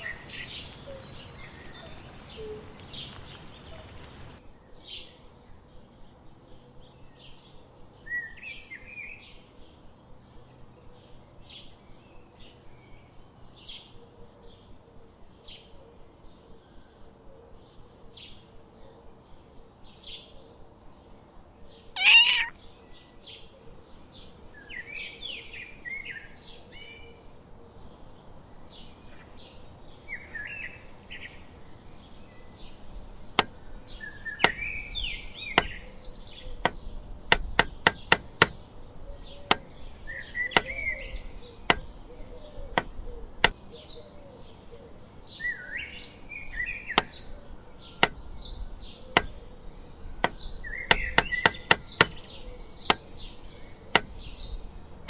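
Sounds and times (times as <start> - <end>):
small birds chirping: 0.0 - 4.4, 22.0 - 22.5
cat meowing: 22.0 - 22.5.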